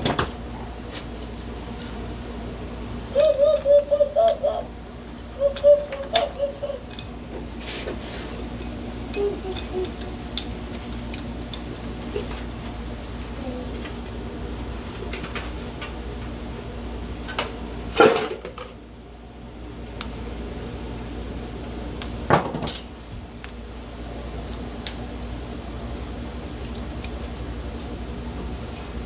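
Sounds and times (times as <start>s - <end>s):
steady low hum: 0.0s - 18.0s
metal tools clinking: 5.6s - 12.4s, 28.5s - 29.0s.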